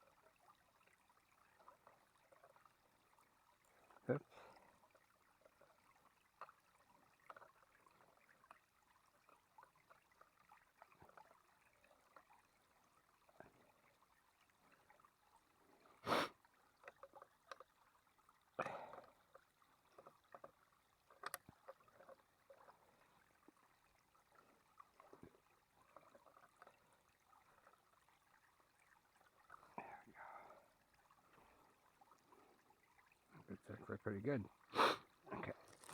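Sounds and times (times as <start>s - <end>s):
faint ticks and rustles: 0.0s - 35.9s.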